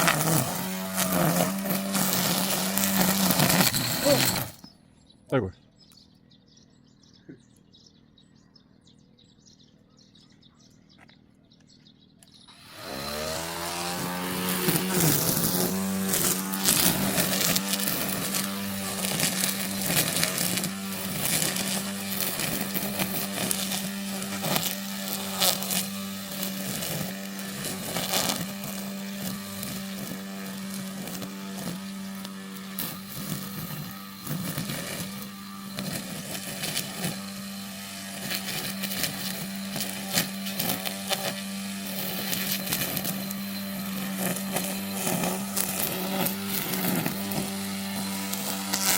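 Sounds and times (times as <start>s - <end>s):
cutting head through grass: 0.0s - 4.7s, 12.5s - 48.9s
brush cutter motor whine: 0.0s - 4.8s, 12.2s - 48.9s.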